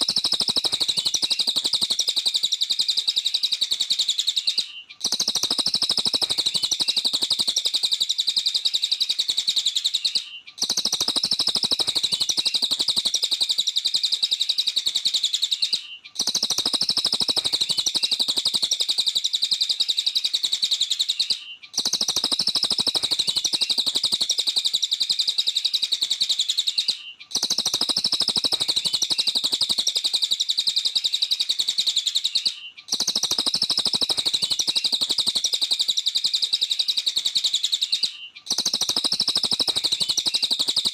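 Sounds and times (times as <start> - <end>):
bird singing high chirps: 0.0 - 40.9.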